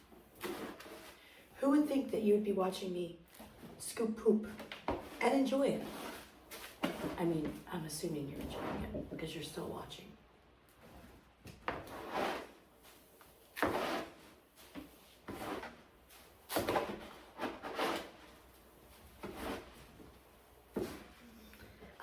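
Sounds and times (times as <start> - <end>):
scoop scraping cat litter: 0.2 - 1.5, 5.0 - 7.6, 11.7 - 19.9.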